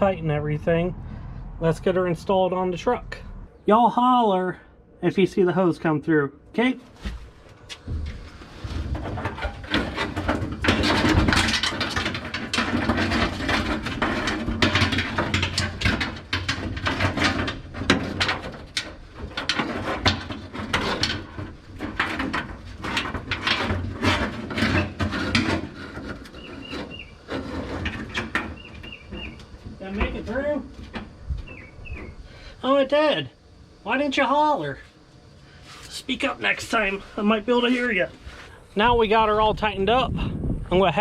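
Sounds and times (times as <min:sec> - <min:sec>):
hose scraping against metal: 0:06.6 - 0:33.2, 0:34.6 - 0:38.8.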